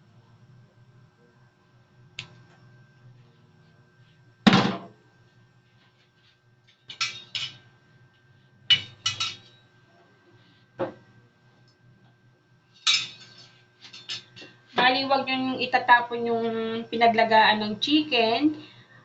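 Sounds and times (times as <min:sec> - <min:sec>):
cookware knocking and clattering: 0:08.7 - 0:09.5.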